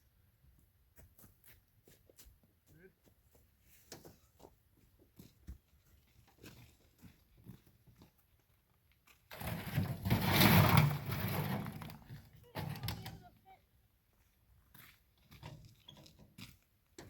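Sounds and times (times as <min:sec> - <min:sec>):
rocks scraping and rumbling: 0:09.0 - 0:13.3.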